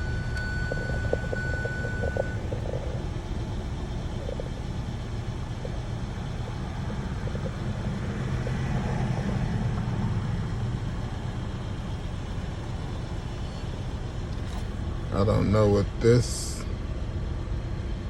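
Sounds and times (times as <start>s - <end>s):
thin beep tone: 0.0s - 2.4s
car engine low rumble: 0.0s - 18.0s.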